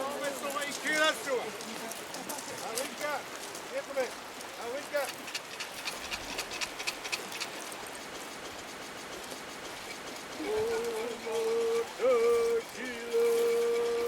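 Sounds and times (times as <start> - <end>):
steady hiss: 0.0 - 14.0
person singing a chant: 10.4 - 14.0.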